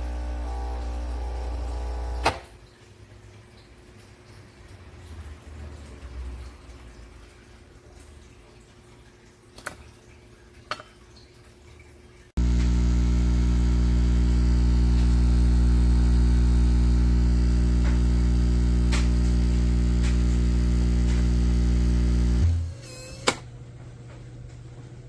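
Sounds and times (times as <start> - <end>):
pod machine pump buzzing: 0.0 - 2.4, 12.4 - 23.4.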